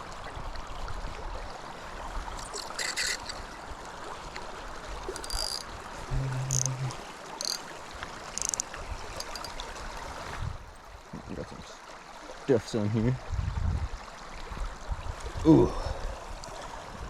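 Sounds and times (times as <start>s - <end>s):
river water rushing: 0.0s - 11.1s.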